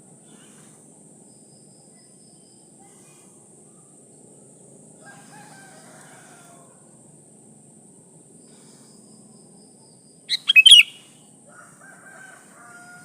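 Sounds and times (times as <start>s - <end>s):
faint short bird notes: 10.3s - 11.0s
pitched bird call: 10.3s - 11.1s.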